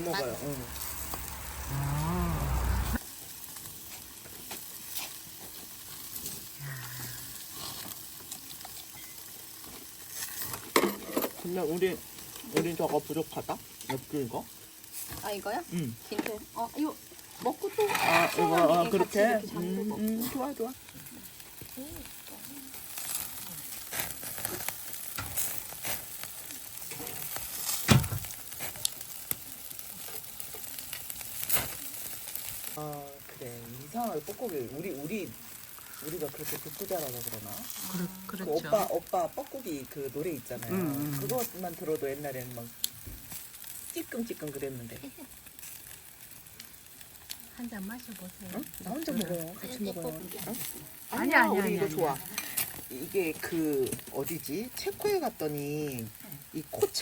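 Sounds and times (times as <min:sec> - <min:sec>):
fire popping and crackling: 0:00.0 - 0:57.0
meat sizzling over wood fire: 0:00.0 - 0:57.0.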